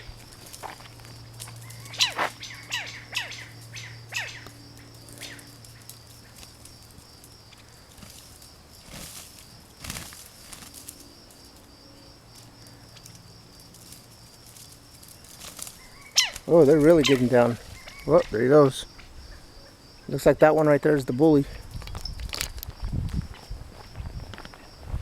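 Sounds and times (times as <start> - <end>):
sharp falling bird chirps: 1.6 - 6.4, 15.7 - 18.4
wing-flapping scuffle: 7.9 - 11.1, 13.7 - 18.1.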